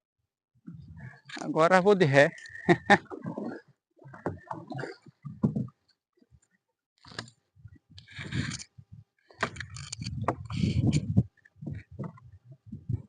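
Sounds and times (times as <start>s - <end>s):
paddle knocking and splashing: 2.9s - 5.9s, 10.2s - 13.0s.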